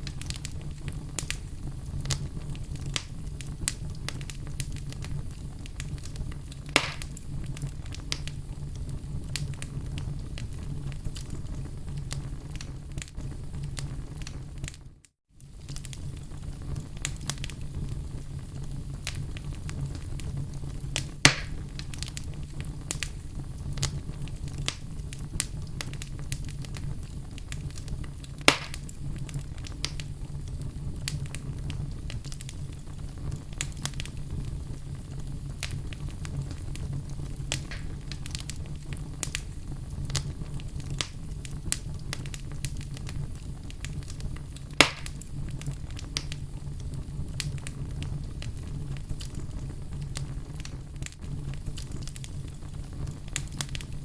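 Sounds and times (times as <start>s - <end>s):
wood fire crackling: 0.0s - 54.0s
loud log pops: 6.8s - 7.1s, 21.3s - 21.6s, 28.5s - 28.8s, 44.8s - 45.1s.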